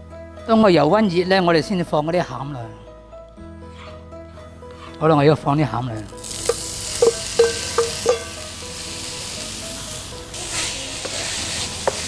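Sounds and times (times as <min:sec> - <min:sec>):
filling sizzling in hot oil: 0:06.0 - 0:12.0
utensils knocking against pan: 0:06.3 - 0:08.4, 0:11.0 - 0:12.0.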